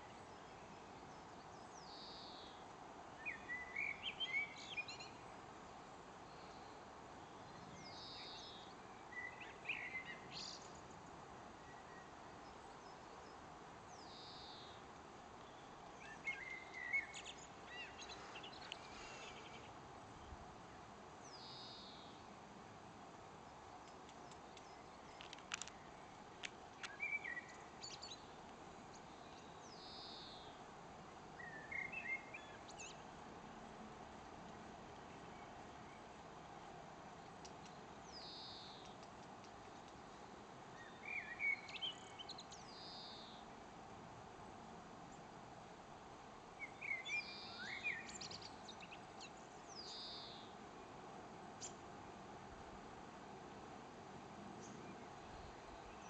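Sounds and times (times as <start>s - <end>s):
low background hiss: 0.0s - 56.0s
steady outdoor background: 0.0s - 56.0s
garden birds calling: 6.3s - 20.4s, 23.5s - 30.6s, 31.3s - 33.1s, 37.2s - 43.5s, 46.6s - 50.6s.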